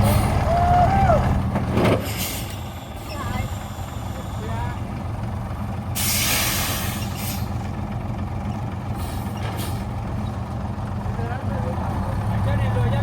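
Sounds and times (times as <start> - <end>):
heavy truck engine running: 0.0 - 13.0
air brake hiss: 2.0 - 4.5, 6.0 - 7.6.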